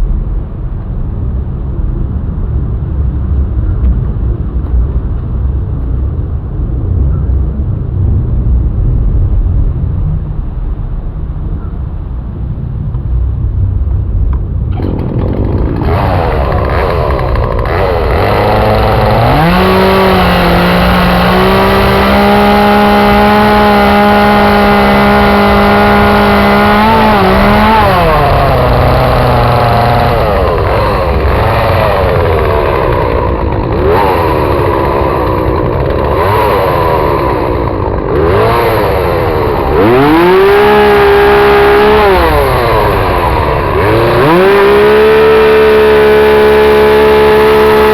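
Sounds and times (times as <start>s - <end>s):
chainsaw revving while carving wood: 14.7s - 47.9s.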